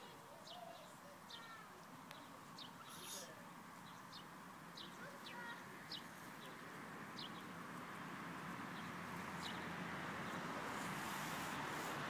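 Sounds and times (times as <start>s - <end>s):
steady outdoor hiss: 0.0s - 12.0s
small bird chirping: 0.4s - 6.6s.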